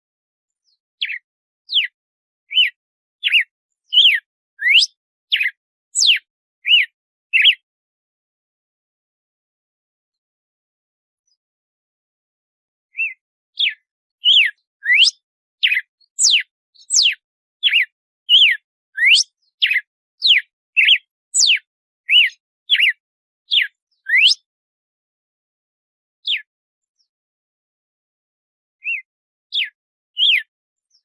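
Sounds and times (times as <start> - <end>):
bird whistling song: 0.6 - 7.6, 12.9 - 24.5, 26.2 - 27.1, 28.8 - 31.0.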